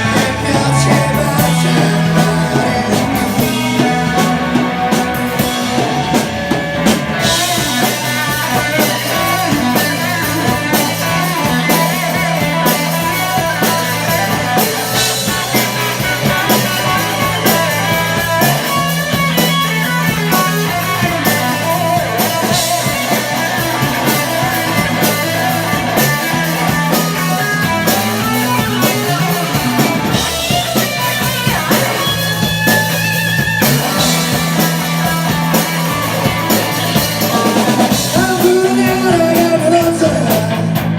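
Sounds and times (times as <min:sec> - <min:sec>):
bass guitar: 0:00.0 - 0:40.9
drum kit: 0:00.0 - 0:40.9
electric guitars: 0:00.0 - 0:40.9.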